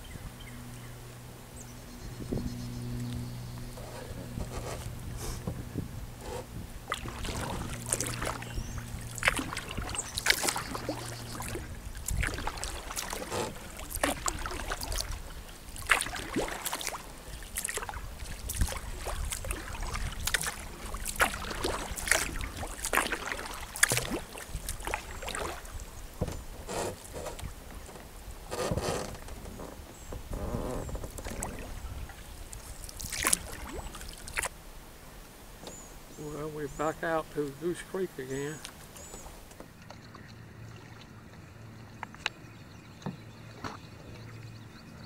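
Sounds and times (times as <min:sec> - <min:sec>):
steady low drone: 0:00.0 - 0:26.0
paddle splashing in water: 0:03.4 - 0:44.7
water drips: 0:06.8 - 0:26.0, 0:32.5 - 0:34.5, 0:37.4 - 0:44.8.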